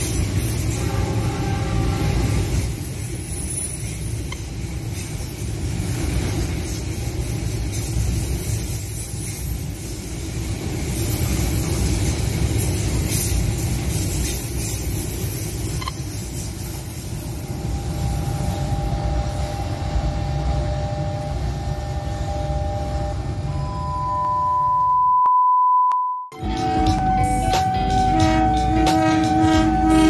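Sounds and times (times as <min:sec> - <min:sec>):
train wheels rumbling on rails: 0:00.0 - 0:23.6, 0:26.4 - 0:30.0
steady two-note tone: 0:21.3 - 0:30.0.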